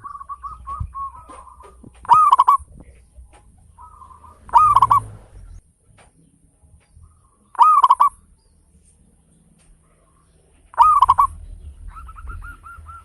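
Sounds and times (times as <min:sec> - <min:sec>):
dove cooing: 0:00.0 - 0:05.4, 0:07.0 - 0:08.2, 0:10.0 - 0:13.0.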